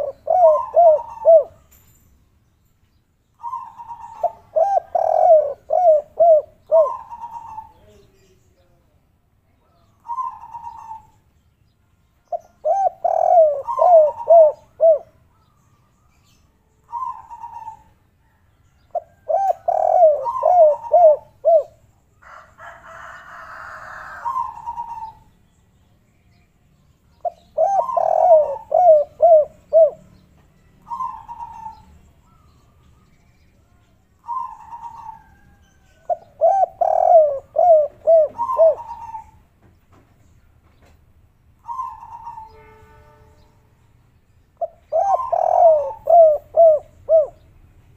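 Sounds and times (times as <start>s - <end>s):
doves cooing: 0.0s - 1.7s, 3.4s - 8.1s, 10.0s - 11.1s, 12.3s - 15.2s, 16.9s - 21.8s, 23.4s - 25.3s, 27.2s - 30.0s, 30.9s - 32.6s, 34.2s - 39.5s, 41.6s - 42.6s, 44.6s - 47.5s.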